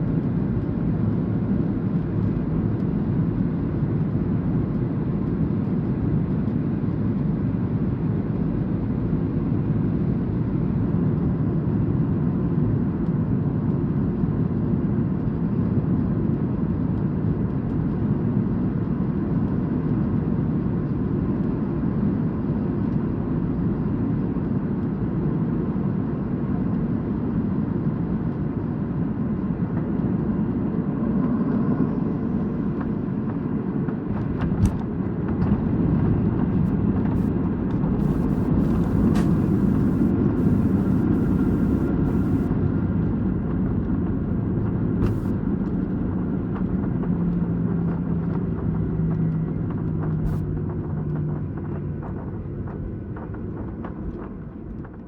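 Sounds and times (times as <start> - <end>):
jet engines rumbling: 31.0 - 45.6
sharp clicks: 38.0 - 42.5.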